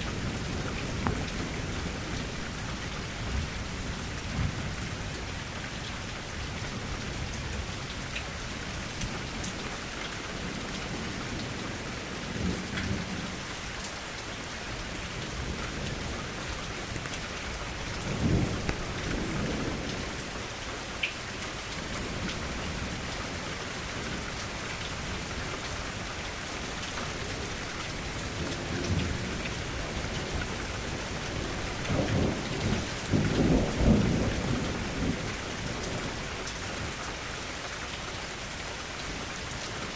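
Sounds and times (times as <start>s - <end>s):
steady rainfall: 0.0s - 39.9s
thunder rumbling: 15.0s - 20.3s, 27.3s - 36.9s.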